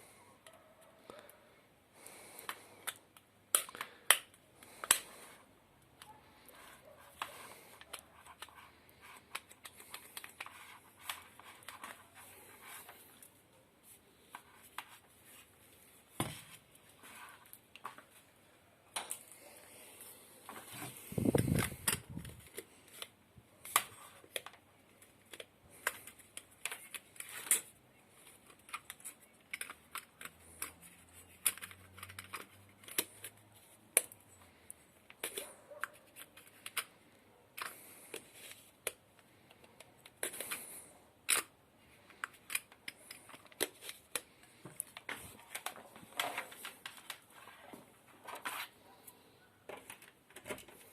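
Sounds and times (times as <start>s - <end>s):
small hard parts clicking: 28.3s - 34.2s.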